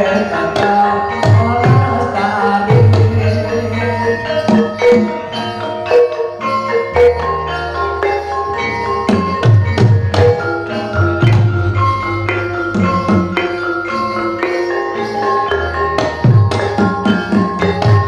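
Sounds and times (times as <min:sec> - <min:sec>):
metallophones ringing melody: 0:00.0 - 0:18.0
drum strokes bending in pitch: 0:00.5 - 0:06.1, 0:09.0 - 0:14.8.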